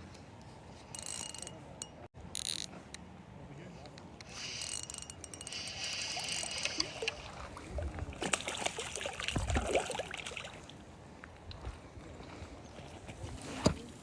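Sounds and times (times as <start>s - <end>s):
fishing reel whirring: 0.9s - 1.5s, 4.2s - 7.4s
water splashing and dripping: 6.2s - 10.8s.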